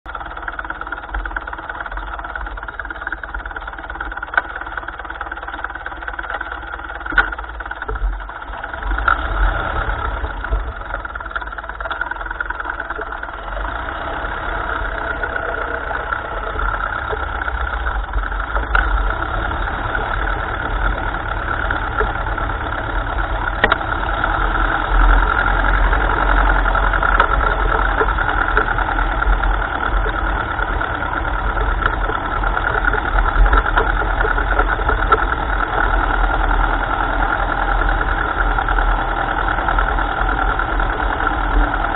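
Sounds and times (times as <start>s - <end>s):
tractor engine running: 0.0s - 41.9s
sharp clicks and knocks: 0.5s - 13.7s, 16.1s - 24.4s, 25.0s - 36.2s.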